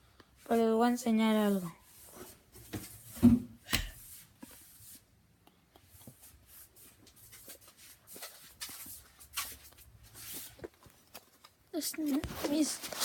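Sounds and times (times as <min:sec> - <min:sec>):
thump: 0:02.7 - 0:04.0
faint rustling: 0:06.0 - 0:13.0.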